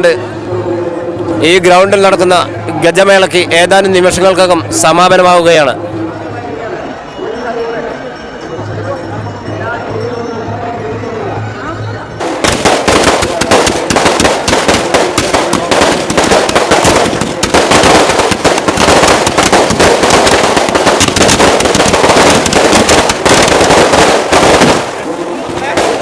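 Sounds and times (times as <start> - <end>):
firecrackers crackling: 12.1 - 26.0.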